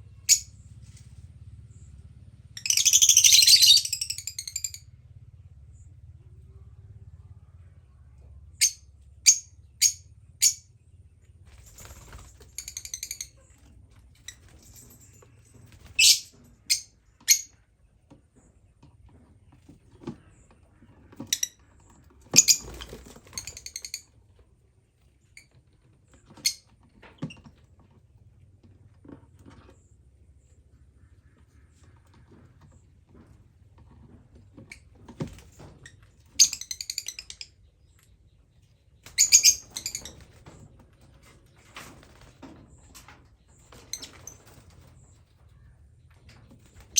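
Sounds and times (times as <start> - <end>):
faint low hum: 0.0 - 46.9
bird chattering: 2.6 - 4.8
birds chirping shrilly: 2.6 - 4.8, 39.0 - 40.3.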